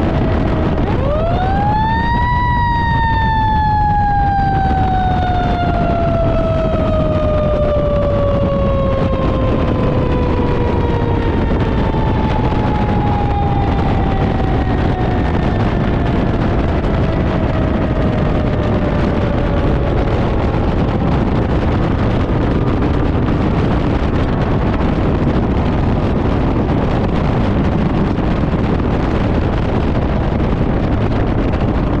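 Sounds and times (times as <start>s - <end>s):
mechanical siren winding down: 0.0s - 22.4s
truck engine and road noise: 0.0s - 32.0s.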